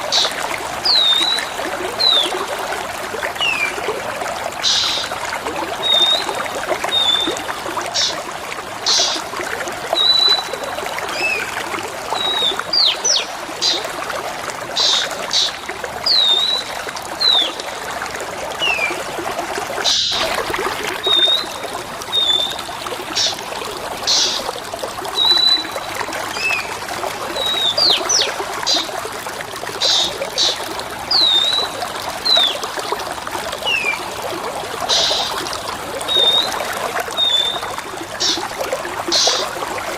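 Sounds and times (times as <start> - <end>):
trickle of running water: 0.0 - 39.9
whistled songbird calls: 0.9 - 2.3, 5.8 - 7.4, 10.0 - 11.5, 12.2 - 13.8, 14.8 - 17.6, 21.0 - 22.6, 25.2 - 26.7, 27.4 - 28.9, 29.8 - 32.6, 33.7 - 34.0, 34.9 - 35.3, 36.1 - 36.6, 37.2 - 38.4.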